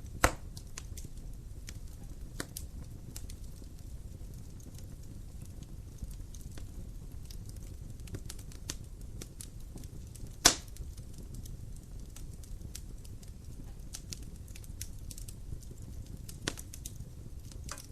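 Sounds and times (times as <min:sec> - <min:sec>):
wood fire crackling: 0:00.0 - 0:17.9
loud sharp pop: 0:00.2 - 0:00.4, 0:10.4 - 0:10.7.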